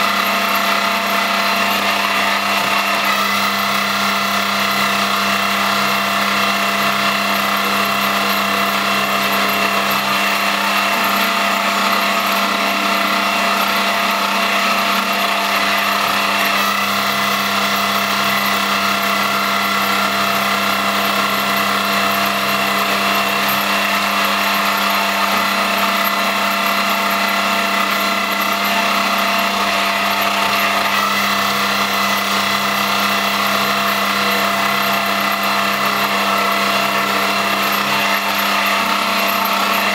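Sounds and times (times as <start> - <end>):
milling machine motor whine: 0.0 - 39.9.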